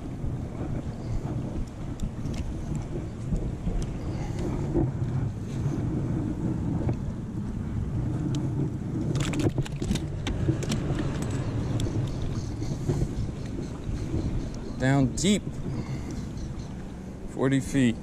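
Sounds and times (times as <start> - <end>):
traffic rumble on bridge: 0.0 - 18.0
sharp clicks and rattles: 9.1 - 13.0.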